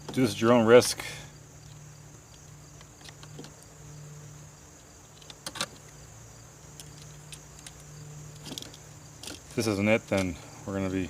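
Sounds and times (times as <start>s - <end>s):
clicks and knocks handling wires: 5.1s - 6.0s, 6.7s - 10.4s.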